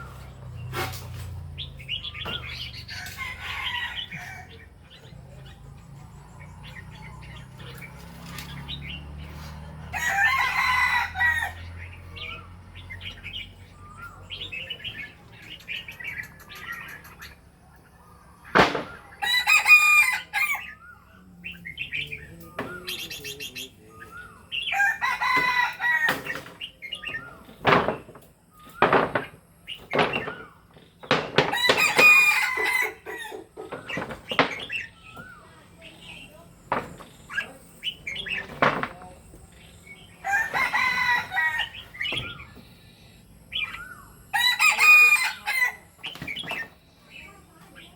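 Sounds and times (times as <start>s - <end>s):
rooster crowing: 2.8s - 4.6s, 9.8s - 11.8s, 19.2s - 20.8s, 24.7s - 26.3s, 31.5s - 33.5s, 40.2s - 42.0s, 44.3s - 45.9s
small bird chirps: 11.2s - 19.4s.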